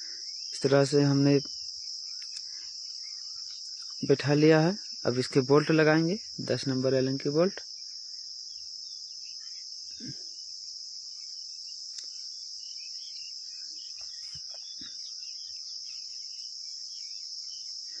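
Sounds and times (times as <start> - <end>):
cricket chorus chirring: 0.0 - 18.0.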